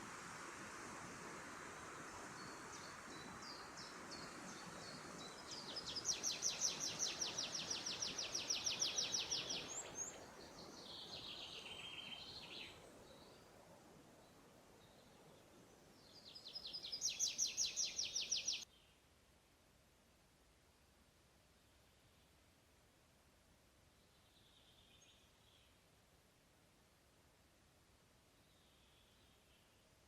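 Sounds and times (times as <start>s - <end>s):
forest background hiss: 0.0s - 30.0s
songbird trilling: 5.8s - 10.2s, 16.4s - 18.6s.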